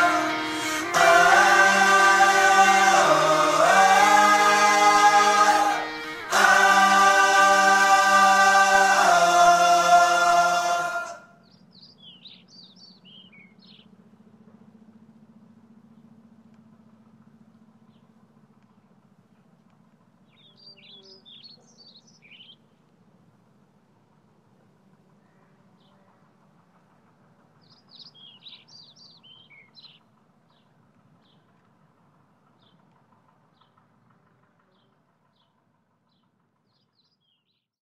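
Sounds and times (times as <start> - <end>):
low steady hum: 0.0 - 27.6
high bird chirp: 11.4 - 13.9, 20.4 - 22.6, 27.7 - 30.0
birds twittering: 11.4 - 14.0, 20.3 - 22.8, 27.6 - 31.5.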